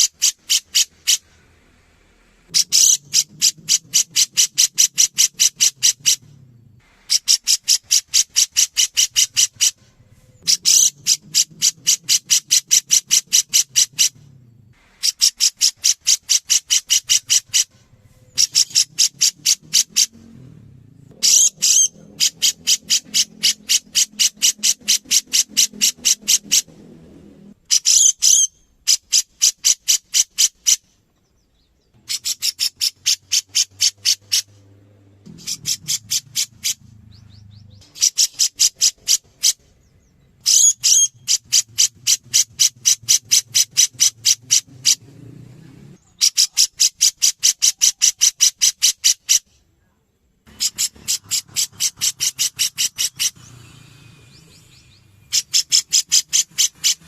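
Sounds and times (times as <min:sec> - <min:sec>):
bird calling high notes: 0:15.0 - 0:30.8.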